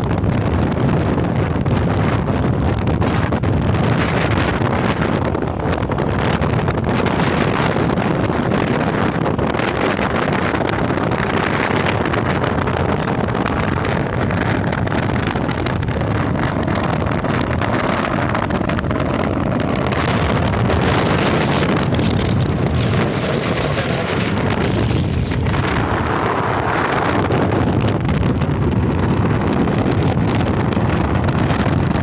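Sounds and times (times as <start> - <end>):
road noise: 0.0 - 32.0
wind rushing over microphone: 0.0 - 32.0
motorcycle engine: 16.5 - 28.1.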